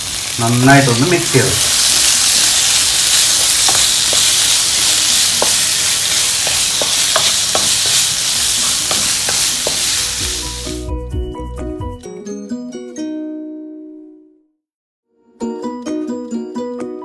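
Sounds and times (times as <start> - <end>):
meat sizzling in a wok: 0.0 - 10.9
wooden spatula scraping pan: 1.7 - 10.6.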